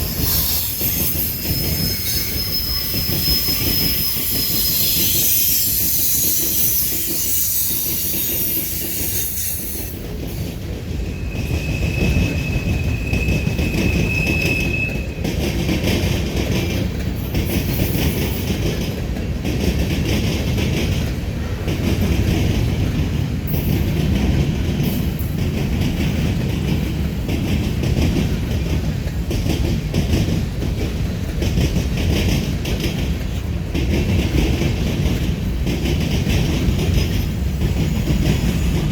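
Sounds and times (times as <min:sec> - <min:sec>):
high wheel squeal: 0:00.0 - 0:10.0, 0:11.0 - 0:15.2
freight train rumbling past: 0:00.0 - 0:38.9.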